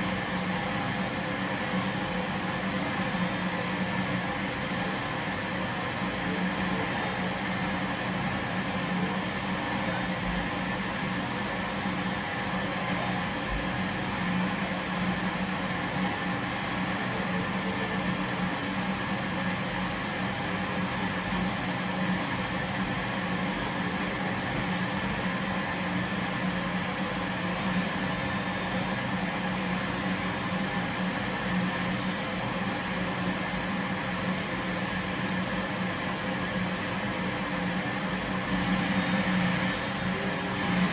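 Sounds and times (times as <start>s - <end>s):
vacuum cleaner running: 23.4s - 40.9s.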